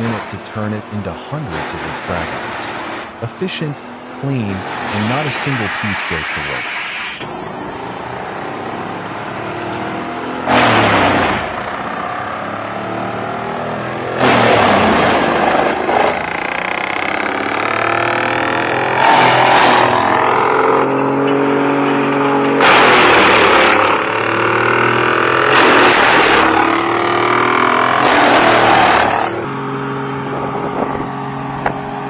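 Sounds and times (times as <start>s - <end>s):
wood chipper engine running: 22.6s - 32.0s.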